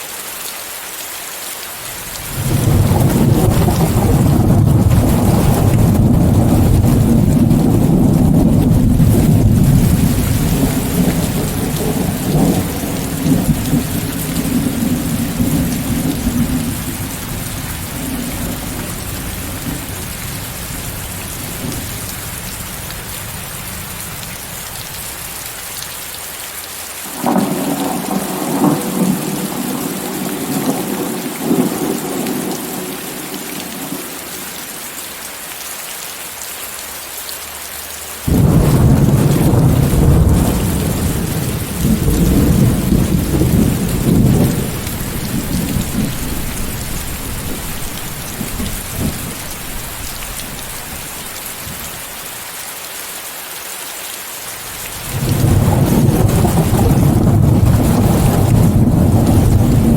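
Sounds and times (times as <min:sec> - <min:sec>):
steady rain: 0:00.0 - 0:59.9
rolling thunder: 0:02.3 - 0:22.6, 0:27.1 - 0:34.1, 0:38.3 - 0:52.0, 0:54.8 - 0:59.9.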